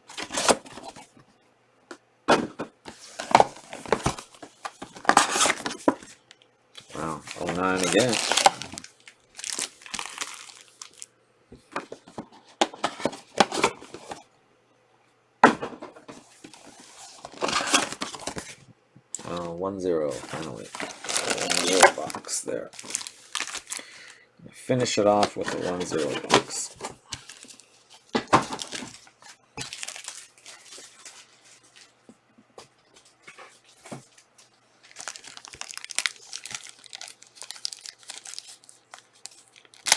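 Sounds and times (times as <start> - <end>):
cards rustling: 2.9 - 11.1, 19.2 - 24.2, 24.8 - 32.0, 32.9 - 39.9
wrapper crinkling: 2.9 - 11.1, 19.2 - 19.5, 20.1 - 24.2, 25.0 - 32.0, 34.8 - 39.9.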